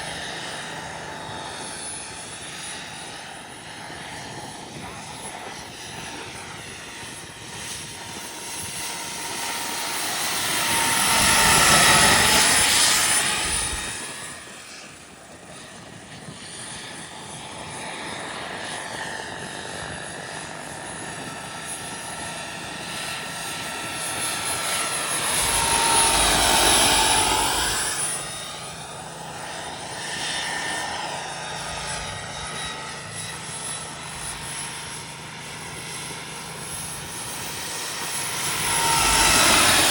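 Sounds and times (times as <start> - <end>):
helicopter rotor noise: 0.0 - 39.9
helicopter turbine whine: 0.0 - 39.9.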